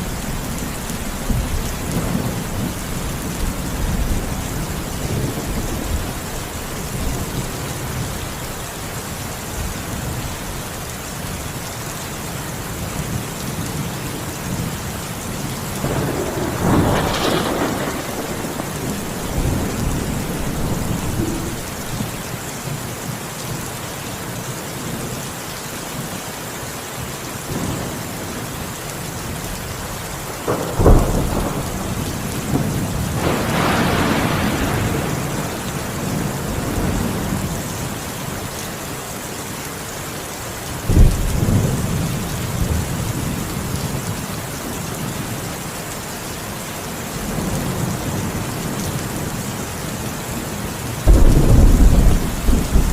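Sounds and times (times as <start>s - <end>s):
thunder claps and rumbles: 0.0s - 8.3s, 15.5s - 22.2s, 30.3s - 38.0s, 40.9s - 44.2s, 51.0s - 52.9s
steady rain: 0.0s - 52.9s.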